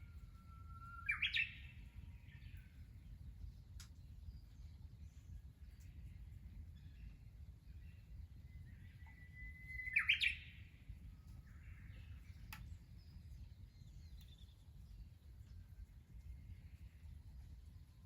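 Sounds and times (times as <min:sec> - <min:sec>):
bird singing: 0:00.0 - 0:02.8, 0:06.8 - 0:15.1
faint bird chirps: 0:00.0 - 0:02.8, 0:06.9 - 0:14.7.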